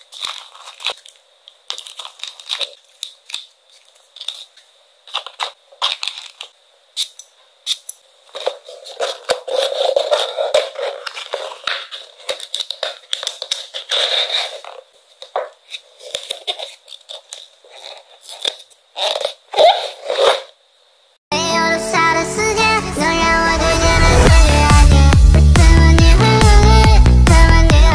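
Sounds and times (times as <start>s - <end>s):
packaging crinkling and rustling: 0.0s - 20.6s.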